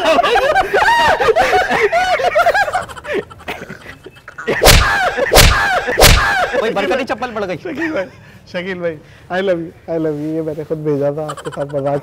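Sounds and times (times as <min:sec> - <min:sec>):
sharp slaps: 0:04.5 - 0:06.6.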